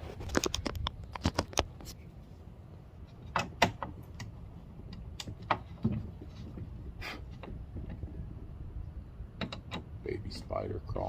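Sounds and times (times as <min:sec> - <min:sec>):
plastic parts clicking and knocking: 0:09.4 - 0:09.9.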